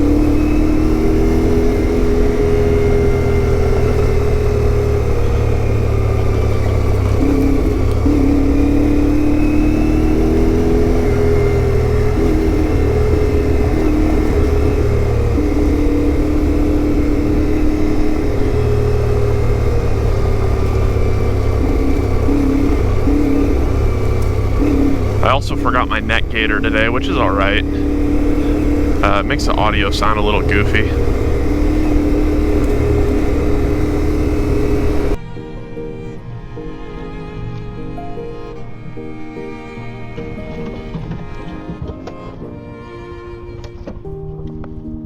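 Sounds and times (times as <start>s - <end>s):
motorcycle engine running: 0.0s - 35.2s.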